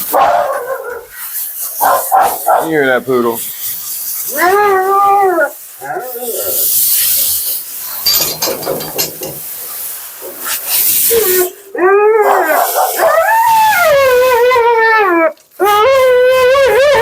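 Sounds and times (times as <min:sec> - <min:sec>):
water spraying: 0:00.0 - 0:14.7
dog howling: 0:04.3 - 0:06.7, 0:11.1 - 0:17.0.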